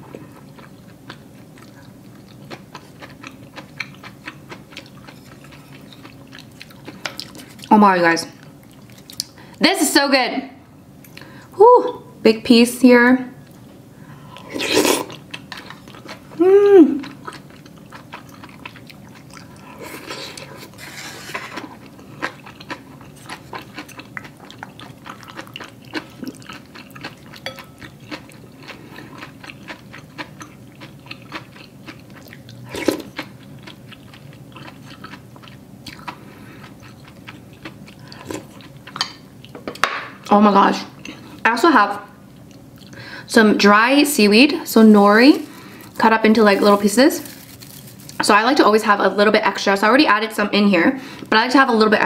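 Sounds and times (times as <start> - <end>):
person chewing food: 0.0 - 7.7, 8.4 - 9.6, 13.4 - 40.2, 42.3 - 43.0
person humming: 16.4 - 17.0.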